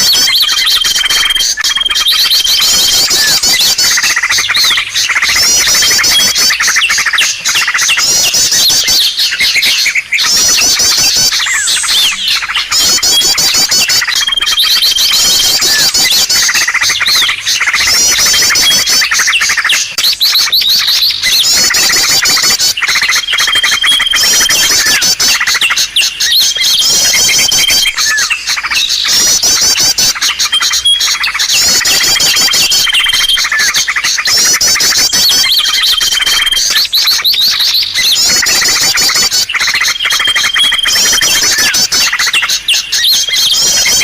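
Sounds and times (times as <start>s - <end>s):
small birds chirping and trilling: 0.0s - 44.0s.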